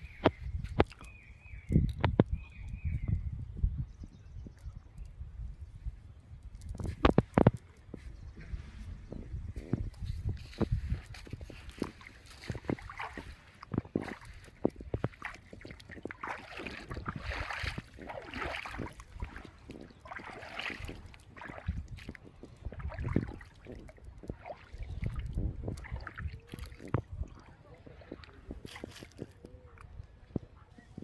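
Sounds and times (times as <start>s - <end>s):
water splashing and sloshing: 6.5s - 30.8s.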